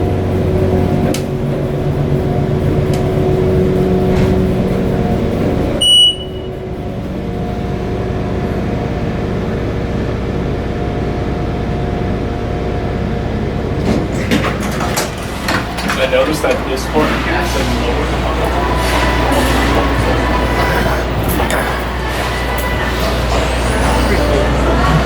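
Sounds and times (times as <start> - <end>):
elevator pump motor humming: 0.0 - 25.0.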